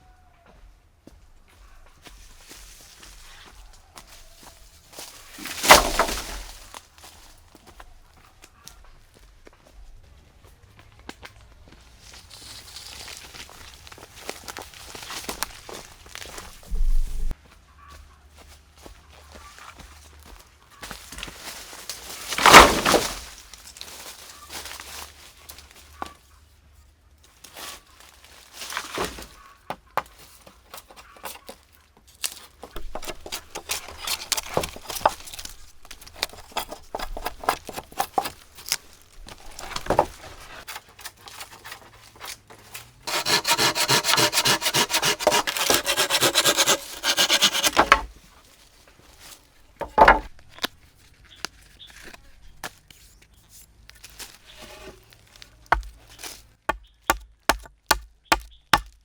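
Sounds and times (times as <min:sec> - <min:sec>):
scraping and rubbing wood: 0:05.2 - 0:06.7, 0:22.3 - 0:23.3, 0:32.7 - 0:42.3, 0:43.1 - 0:48.2, 0:49.6 - 0:50.7, 0:54.3 - 0:58.9
sawing wood: 0:05.4 - 0:06.6, 0:22.4 - 0:23.2, 0:32.8 - 0:40.6, 0:43.0 - 0:48.2, 0:49.8 - 0:50.7, 0:54.4 - 0:55.0
knocks on wood: 0:43.1 - 0:48.1, 0:49.8 - 0:50.4.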